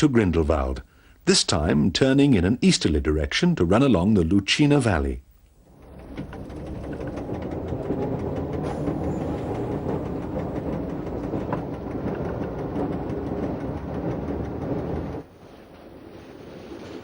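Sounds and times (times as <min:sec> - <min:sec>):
wheels clicking on rails: 0:05.4 - 0:17.0
electric train rumbling: 0:05.5 - 0:17.0.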